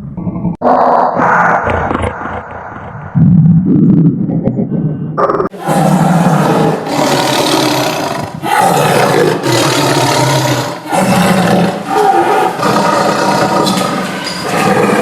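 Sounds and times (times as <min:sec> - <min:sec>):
tiger roaring: 0:05.2 - 0:15.0.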